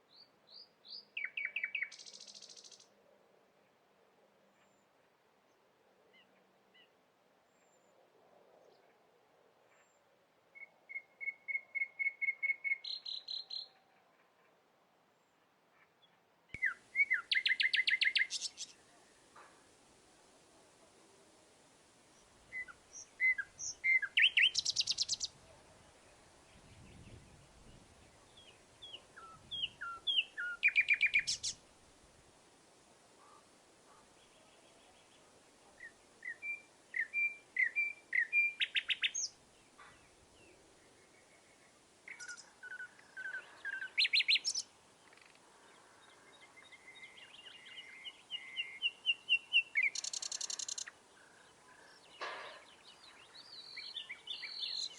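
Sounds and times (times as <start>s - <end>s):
songbird singing trill: 0.1s - 2.9s, 10.6s - 13.9s, 16.6s - 18.9s, 22.2s - 31.6s, 35.8s - 54.9s.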